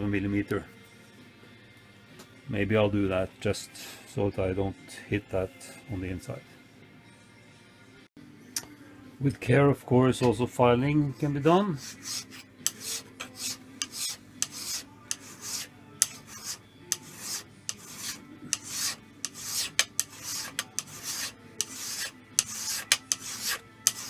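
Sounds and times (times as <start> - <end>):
hand file rasping on metal: 11.1 - 24.0.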